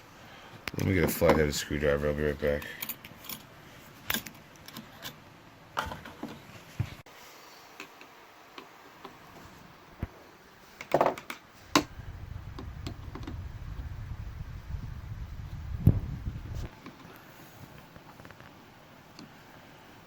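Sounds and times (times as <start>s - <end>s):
low steady rumble: 11.6s - 16.7s.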